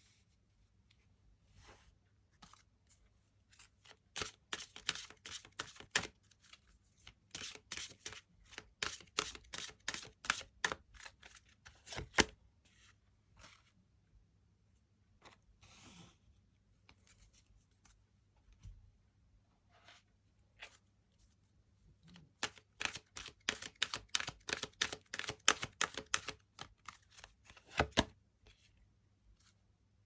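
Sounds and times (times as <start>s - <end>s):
cards being shuffled: 3.6s - 12.3s, 22.4s - 28.1s.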